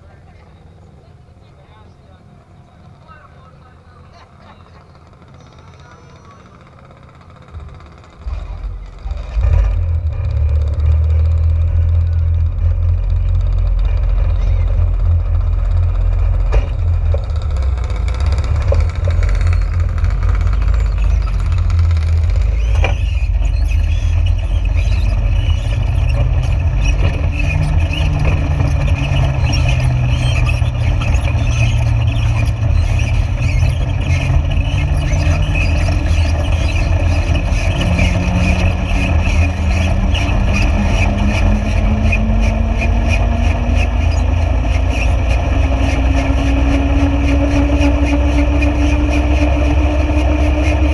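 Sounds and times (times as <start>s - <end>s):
vehicle engine running: 0.0s - 50.9s
heavy low rumble: 7.3s - 48.6s.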